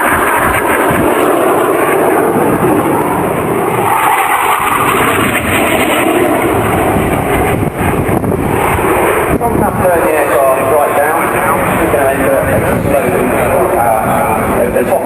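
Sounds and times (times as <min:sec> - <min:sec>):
aircraft engine rushing: 0:00.0 - 0:15.0.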